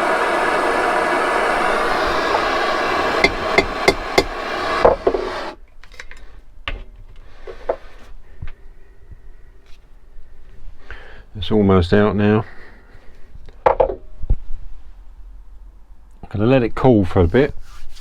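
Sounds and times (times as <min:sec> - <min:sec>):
steady hiss of heat source: 0:00.0 - 0:05.6.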